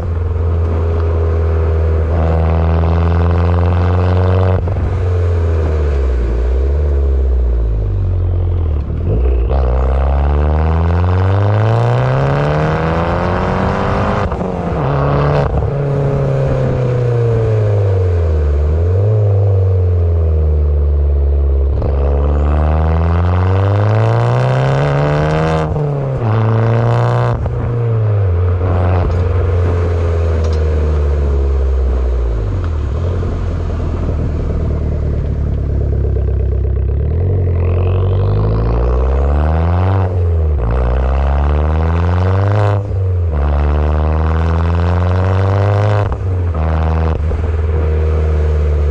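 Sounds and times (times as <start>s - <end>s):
car engine accelerating hard: 0.0s - 48.9s
exhaust cracks on gear shifts: 25.7s - 39.3s.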